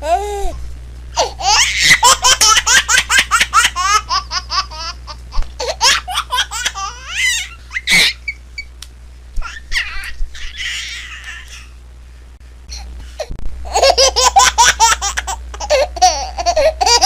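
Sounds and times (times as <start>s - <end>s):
steady low hum: 0.0s - 17.0s
baby laughing: 1.2s - 8.4s, 9.4s - 11.8s, 13.7s - 17.0s.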